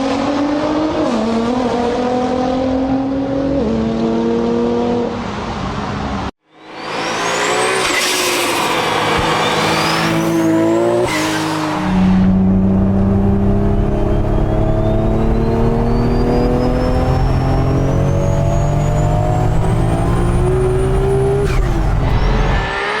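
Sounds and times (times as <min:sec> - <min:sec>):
car engine under load: 0:06.8 - 0:23.0.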